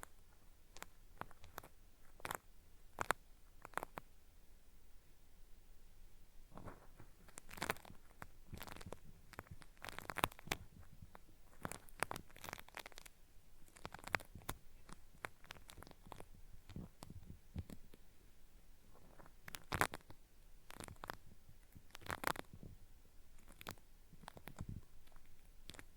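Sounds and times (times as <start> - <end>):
cotton swab scraping microphone: 6.5 - 18.0.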